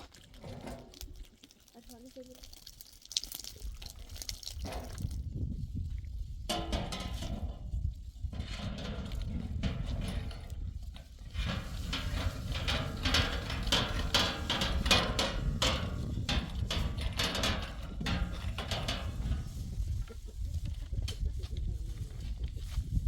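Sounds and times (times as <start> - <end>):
steady low rumble: 4.8 - 23.0.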